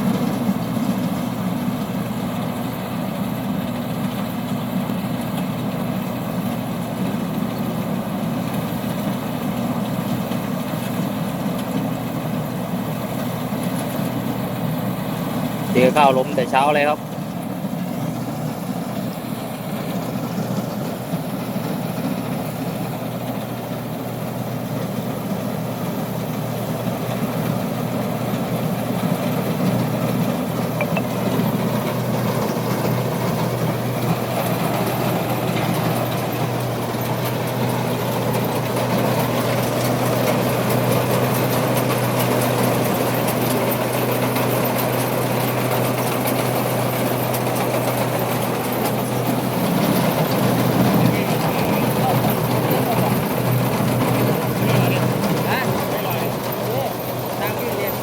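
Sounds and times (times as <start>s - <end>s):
combine harvester engine drone: 0.0s - 58.0s.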